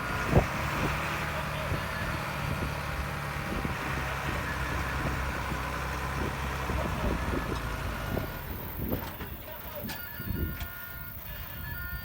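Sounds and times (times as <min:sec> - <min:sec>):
diesel machine engine running: 0:00.0 - 0:12.0.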